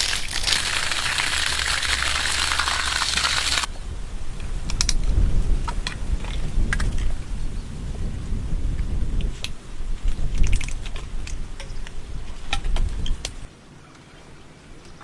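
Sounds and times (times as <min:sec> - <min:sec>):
water splashing: 0:00.0 - 0:03.7.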